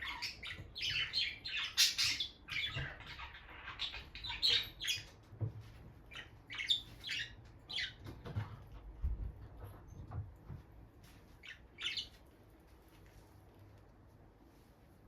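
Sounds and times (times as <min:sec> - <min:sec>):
lovebirds chirping: 0:00.0 - 0:05.4, 0:06.0 - 0:08.2, 0:11.4 - 0:12.4.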